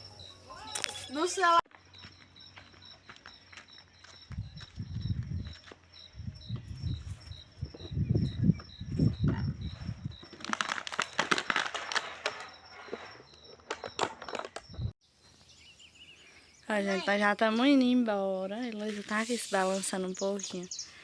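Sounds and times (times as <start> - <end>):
cricket chirping: 0.0 - 14.9
rustling crackling noise: 8.9 - 14.7.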